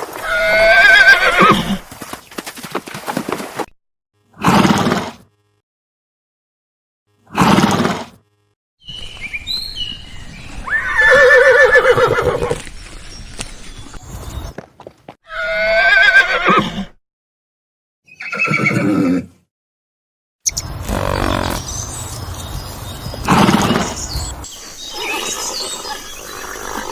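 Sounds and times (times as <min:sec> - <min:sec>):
horses whinnying: 0:00.2 - 0:01.8, 0:10.6 - 0:12.6, 0:15.3 - 0:17.0, 0:18.2 - 0:19.3, 0:20.8 - 0:21.7.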